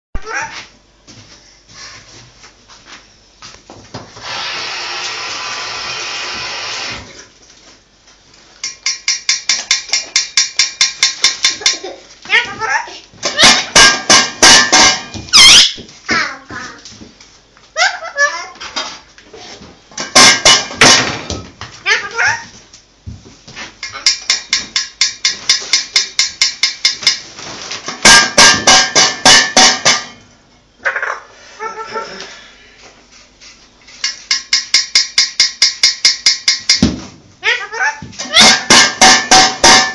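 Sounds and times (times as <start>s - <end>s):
parrot making sharp repeated sounds: 8.7s - 16.7s, 20.1s - 21.1s, 21.8s - 22.5s, 28.0s - 30.1s, 37.4s - 39.9s
parrot screeching: 12.3s - 14.6s, 15.3s - 16.2s, 30.8s - 32.1s, 37.4s - 38.8s
parrot short repeated calls: 15.3s - 15.8s.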